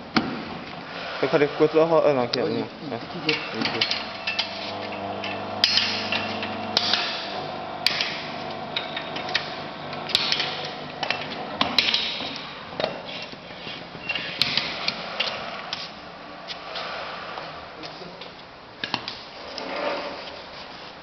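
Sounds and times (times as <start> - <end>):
machine hum: 2.6 - 13.3.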